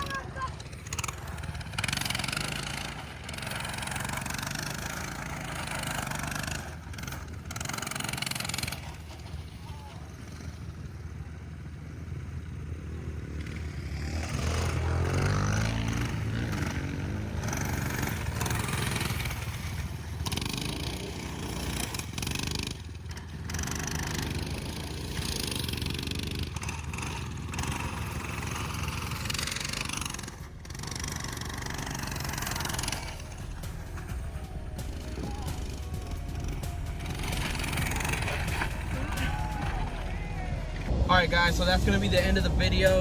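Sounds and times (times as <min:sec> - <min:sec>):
dirt bike engine revving: 0:00.0 - 0:43.0.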